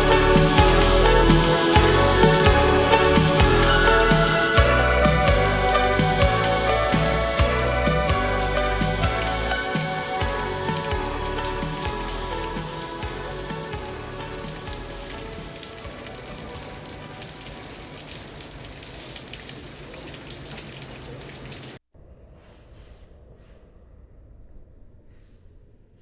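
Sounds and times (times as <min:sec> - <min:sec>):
song playing: 0:00.0 - 0:17.4
rain hiss: 0:00.0 - 0:21.8.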